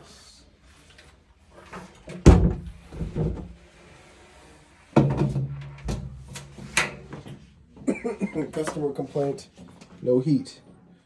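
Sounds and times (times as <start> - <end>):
dryer parts knocking: 2.2 - 3.5.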